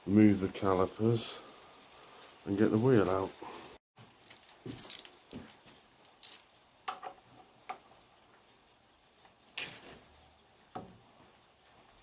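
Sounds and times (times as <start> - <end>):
metal tools clinking: 4.2 - 5.3, 6.0 - 6.6
tools clattering: 4.2 - 7.4.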